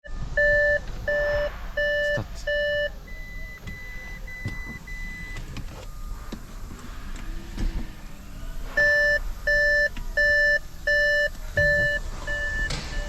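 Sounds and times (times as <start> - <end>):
quieter higher-pitched beeps: 0.0 - 6.1
car warning beeps: 0.0 - 13.0.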